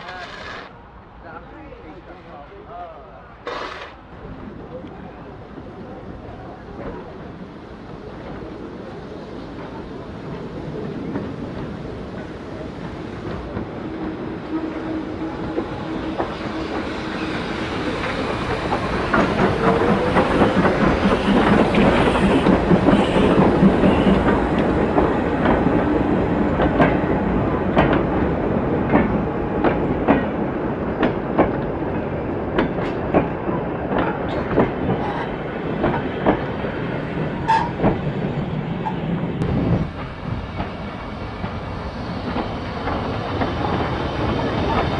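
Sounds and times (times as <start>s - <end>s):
train passing: 0.0s - 44.9s
wheels clicking over rail joints: 10.6s - 25.7s.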